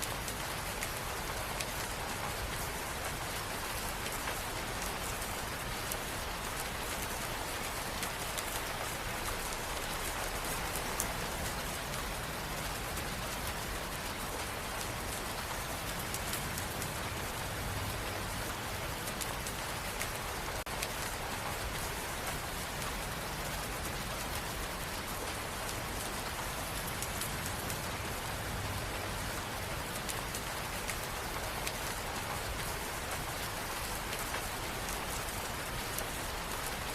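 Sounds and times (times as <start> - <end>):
rain on hard surfaces: 0.0 - 36.9
raindrop ticks: 0.0 - 36.9.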